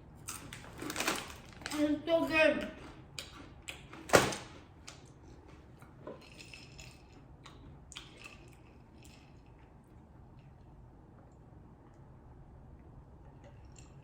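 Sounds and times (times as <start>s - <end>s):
chewing crunchy chips: 0.2s - 1.9s, 2.8s - 10.7s.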